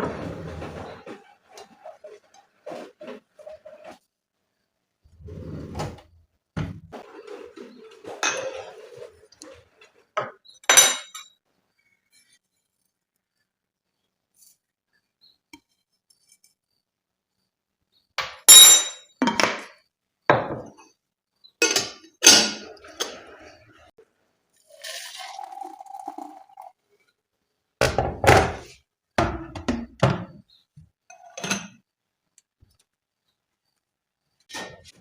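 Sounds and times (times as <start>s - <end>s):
dishes clinking and thunking: 8.0s - 8.9s, 10.2s - 11.2s, 18.2s - 20.8s, 21.6s - 23.5s, 27.8s - 30.4s, 31.1s - 31.8s.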